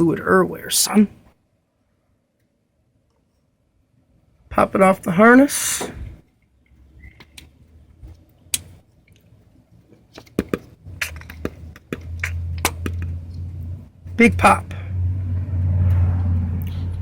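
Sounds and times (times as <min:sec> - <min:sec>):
low steady rumble: 0:10.7 - 0:17.0.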